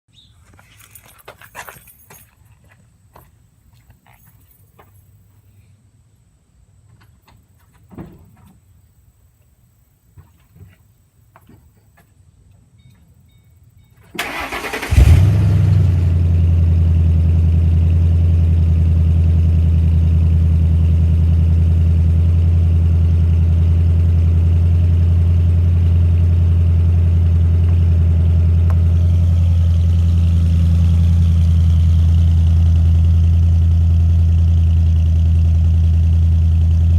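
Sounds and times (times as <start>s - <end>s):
car engine starter cranking: 14.2s - 15.4s
car engine idling: 14.2s - 36.9s.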